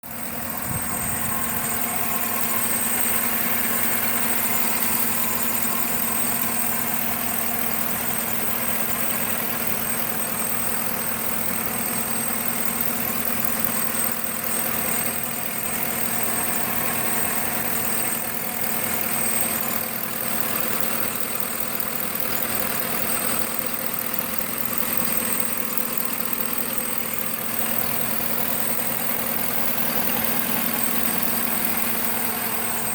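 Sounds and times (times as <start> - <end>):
car engine idling: 0.0 - 32.9.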